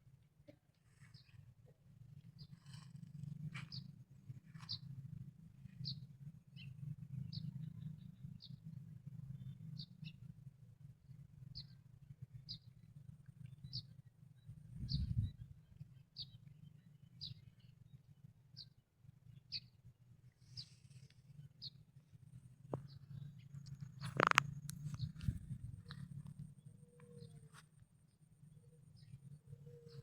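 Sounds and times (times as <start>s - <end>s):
steady low hum: 0.0s - 30.0s
small bird chirping: 2.3s - 5.0s, 5.6s - 8.6s, 14.8s - 17.7s, 22.7s - 30.0s.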